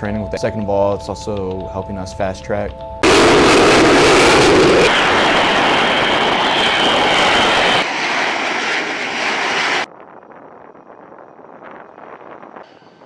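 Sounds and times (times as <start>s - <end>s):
faint high whine: 3.0s - 9.9s
jet engine running: 3.0s - 9.9s.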